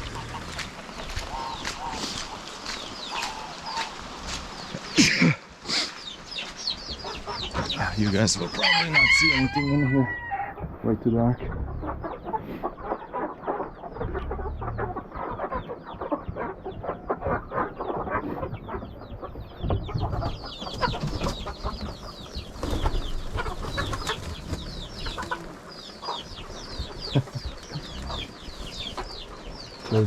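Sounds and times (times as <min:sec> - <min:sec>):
fowl calling: 0:07.0 - 0:10.7, 0:22.7 - 0:30.0.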